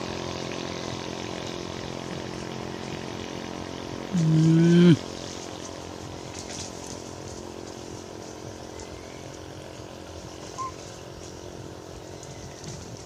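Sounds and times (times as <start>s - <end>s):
outdoor background noise: 0.0s - 13.0s
short chirp: 10.6s - 10.8s.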